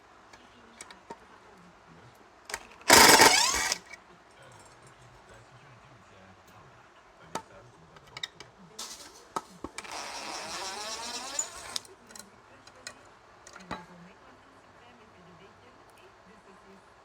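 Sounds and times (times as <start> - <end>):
power drill running: 2.5 - 4.0, 9.8 - 11.9.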